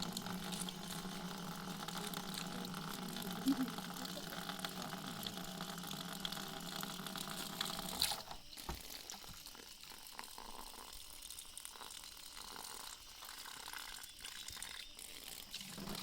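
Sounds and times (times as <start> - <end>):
water rushing: 0.0 - 7.9.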